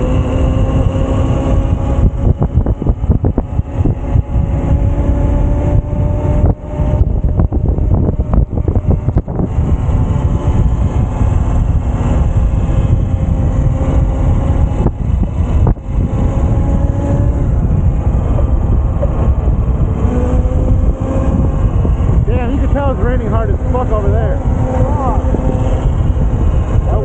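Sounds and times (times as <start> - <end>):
electric motor whine: 0.0 - 27.0
wind buffeting microphone: 0.0 - 27.0.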